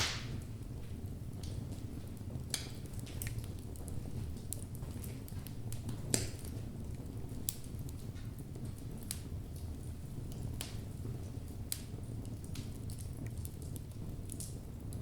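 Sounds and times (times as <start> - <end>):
fire rumbling: 0.0 - 15.0
wood crackling and popping: 0.0 - 15.0.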